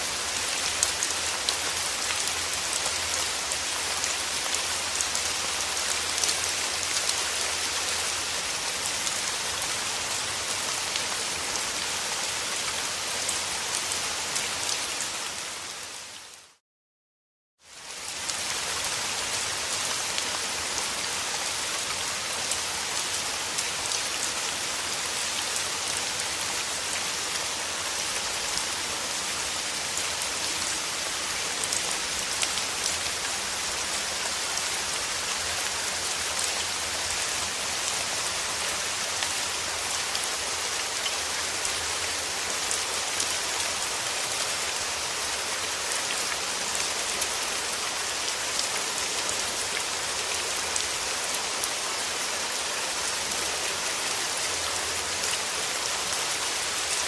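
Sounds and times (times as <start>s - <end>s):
steady rain falling: 0.0s - 16.6s, 17.6s - 57.0s.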